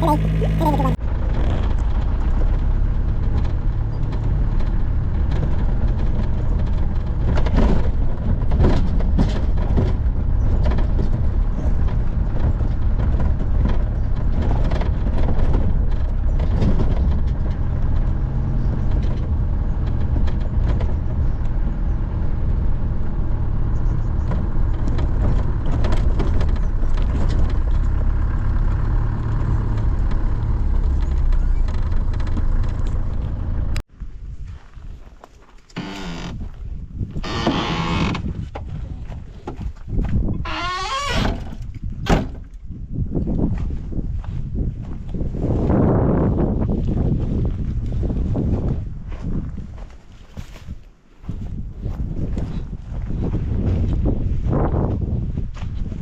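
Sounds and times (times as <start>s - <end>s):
engine and road rumble: 0.0s - 56.0s
knocks and rattles: 1.9s - 33.8s.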